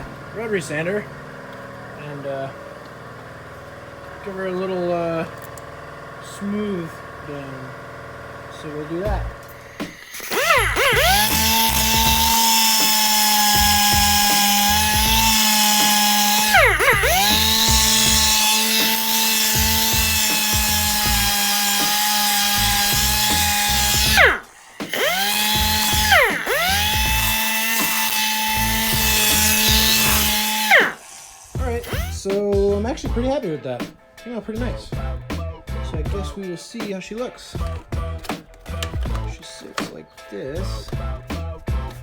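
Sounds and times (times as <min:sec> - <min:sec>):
rotary sander whining: 0:00.0 - 0:32.4.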